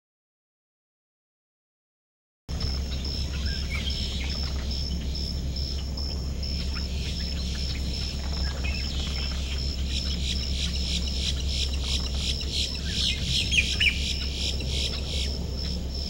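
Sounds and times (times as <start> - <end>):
birds chirping: 2.5 - 16.0
steady low rumble: 2.5 - 16.0
sharp squawking bird calls: 2.9 - 5.9, 6.5 - 15.4.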